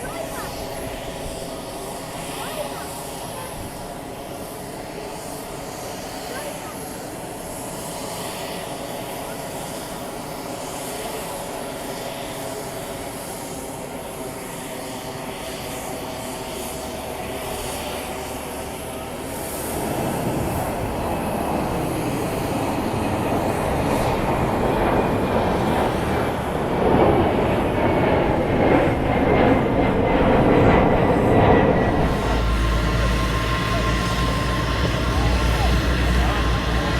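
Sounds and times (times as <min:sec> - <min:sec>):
jet engines whining: 0:00.0 - 0:36.9
rushing jet noise: 0:15.8 - 0:36.9.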